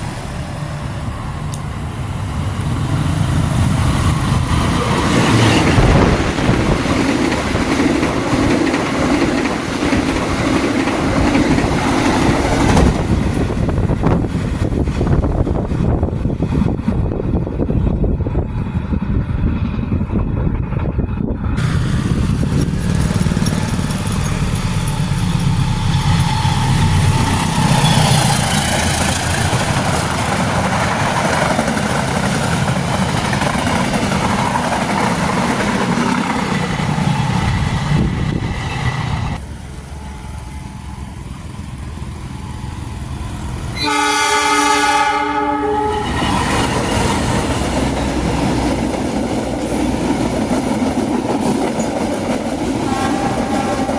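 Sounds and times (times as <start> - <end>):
train wheels clattering: 1.5 - 37.7, 46.0 - 53.9
train horn blast: 43.7 - 46.4, 52.8 - 53.9.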